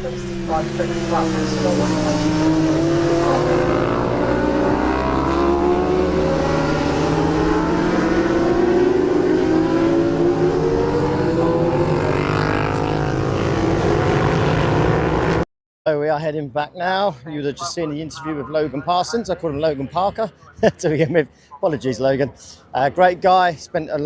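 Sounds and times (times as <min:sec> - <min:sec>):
racing motorcycle engines: 0:00.0 - 0:15.4.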